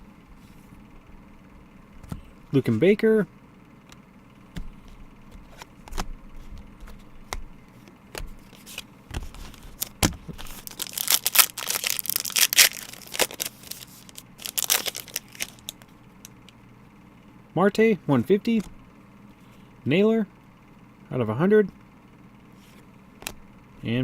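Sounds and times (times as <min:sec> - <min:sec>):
cards clicking and tapping: 0:04.5 - 0:07.5
card pack wrapper tearing: 0:08.4 - 0:15.9
wrapper crinkling: 0:08.6 - 0:15.9.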